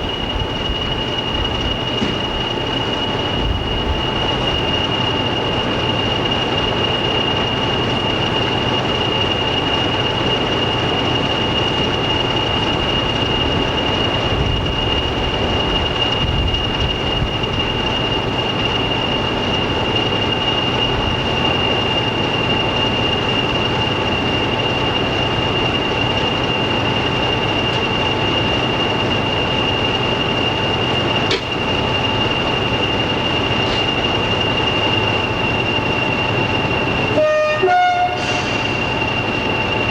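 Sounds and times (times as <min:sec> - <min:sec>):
diesel train rumble: 0:00.0 - 0:39.9
high whine: 0:00.0 - 0:39.9.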